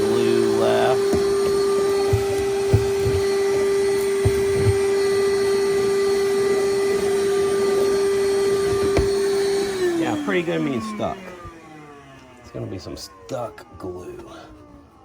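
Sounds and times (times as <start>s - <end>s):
vacuum motor running: 0.0s - 15.0s.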